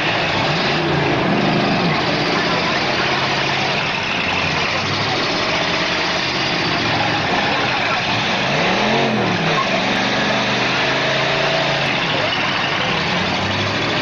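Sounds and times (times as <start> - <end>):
car engines running: 0.0 - 14.0
engine revving: 0.0 - 14.0.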